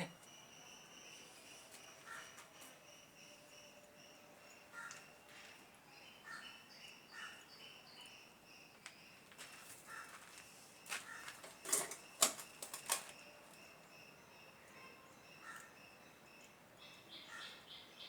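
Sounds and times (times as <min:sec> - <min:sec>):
insects chirping: 0:00.0 - 0:17.3
birds chirping: 0:00.0 - 0:18.0
sharp clicks and knocks: 0:11.3 - 0:13.2.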